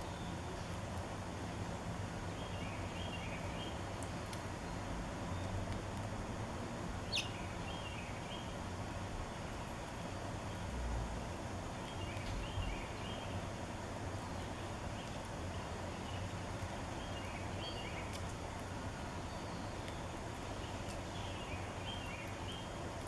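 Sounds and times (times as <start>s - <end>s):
songbird singing: 0.0s - 0.9s, 2.2s - 5.8s, 6.9s - 23.0s
steady outdoor hiss: 0.0s - 23.0s.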